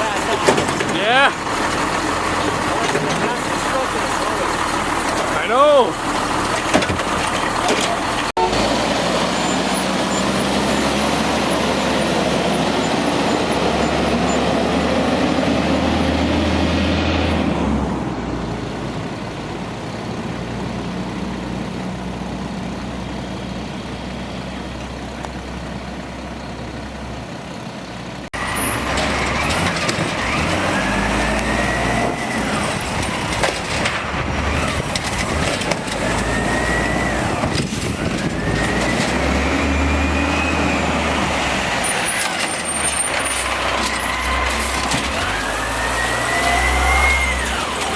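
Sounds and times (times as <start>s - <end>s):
garbage truck engine running: 0.0s - 47.9s
rising mechanical whines: 34.3s - 47.9s.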